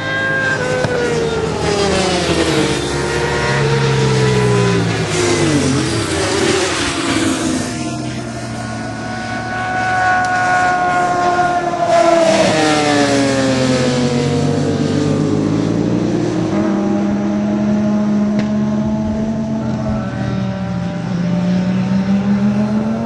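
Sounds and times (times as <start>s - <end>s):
motorbike passing by: 0.0s - 23.0s
racing motorbike engines revving: 0.0s - 23.0s.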